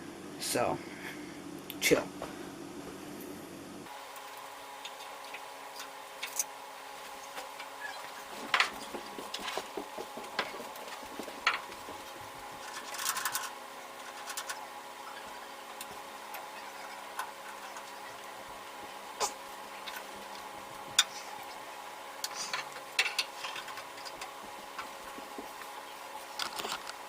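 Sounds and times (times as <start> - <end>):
sharp clicks and knocks: 8.3 - 13.5.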